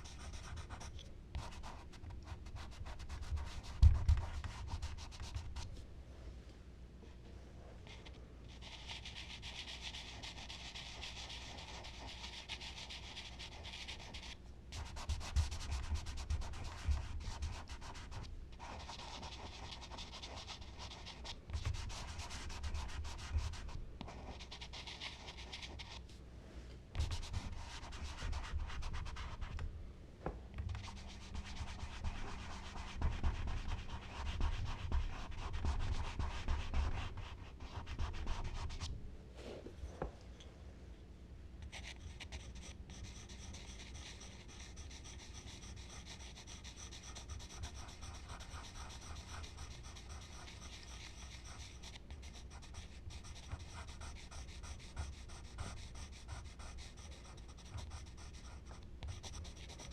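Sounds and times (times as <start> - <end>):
charcoal rubbing on paper: 8.6 - 26.0, 30.8 - 38.9, 41.9 - 59.9.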